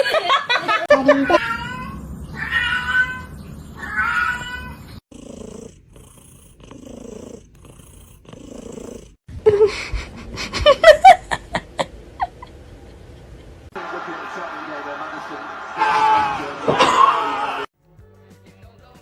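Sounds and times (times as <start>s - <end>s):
cat meowing: 1.0s - 5.0s
cat purring: 5.0s - 9.3s.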